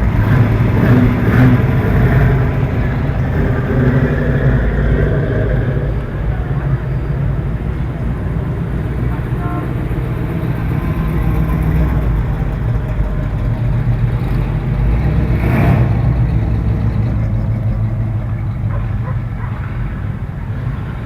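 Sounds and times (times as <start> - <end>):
car engine passing: 0.0 - 21.0.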